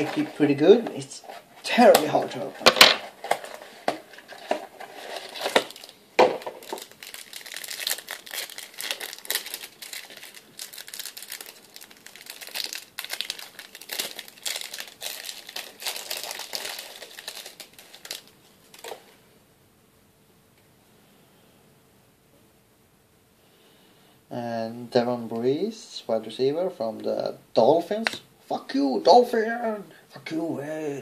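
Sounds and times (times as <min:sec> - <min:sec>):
card pack wrapper crinkling: 0:01.8 - 0:19.0
wrapper tearing: 0:02.7 - 0:19.0.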